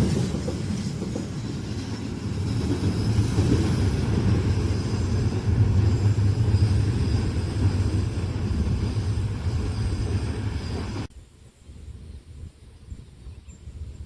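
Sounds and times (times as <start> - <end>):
train wheels rumbling on rails: 0.0 - 11.1.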